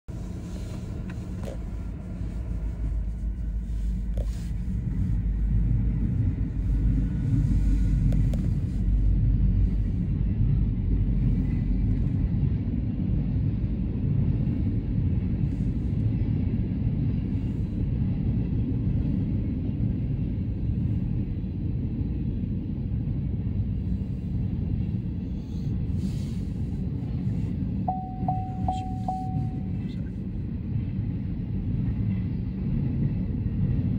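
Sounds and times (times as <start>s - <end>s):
freight train rumbling: 0.1s - 33.9s
short steady tone: 27.9s - 30.0s.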